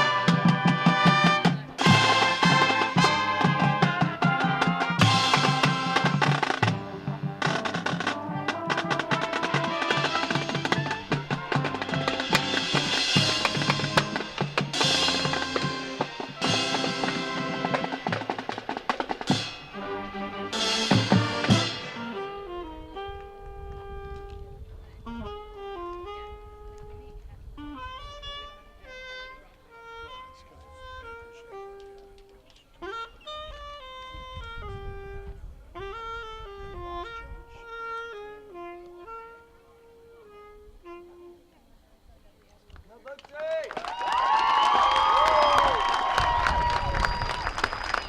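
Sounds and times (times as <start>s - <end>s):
snare drum rolls: 0.0s - 22.2s
sustained wind chords: 0.0s - 31.8s.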